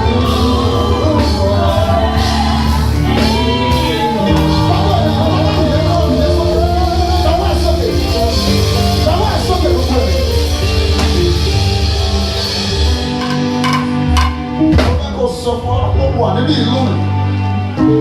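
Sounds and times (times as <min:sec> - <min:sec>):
lead voice singing gospel: 0:00.0 - 0:13.2
band with steady beat and bass: 0:00.0 - 0:18.0.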